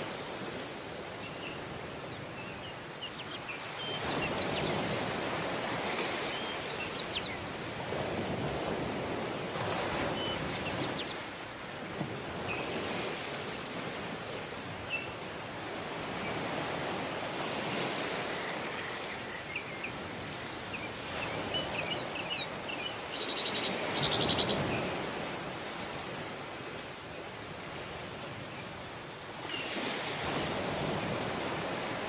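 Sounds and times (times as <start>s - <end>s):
small birds chirping: 18.4s - 25.1s
surf washing onto beach: 29.5s - 32.0s.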